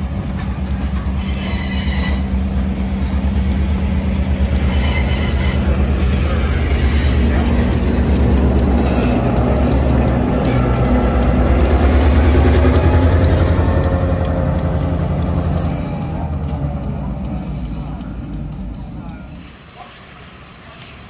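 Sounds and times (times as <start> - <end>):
diesel locomotive rumble: 0.0 - 21.0
train wheels squealing on rail: 0.6 - 2.4, 4.6 - 7.7, 8.3 - 9.4.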